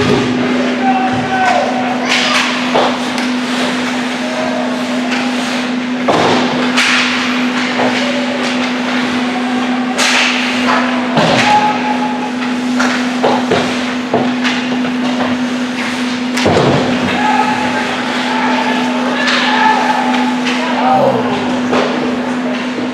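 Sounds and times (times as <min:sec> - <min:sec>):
hockey sticks and puck knocking: 0:06.0 - 0:08.8.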